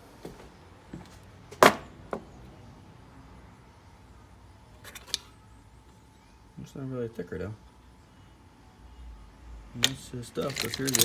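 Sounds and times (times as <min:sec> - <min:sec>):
metal hardware clanking: 0:09.8 - 0:11.0.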